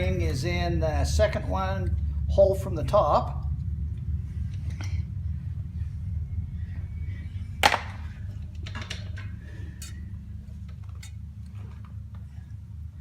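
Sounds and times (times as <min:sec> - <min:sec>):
steady low hum: 0:00.0 - 0:13.0
metal parts clicking and clinking: 0:08.4 - 0:11.9.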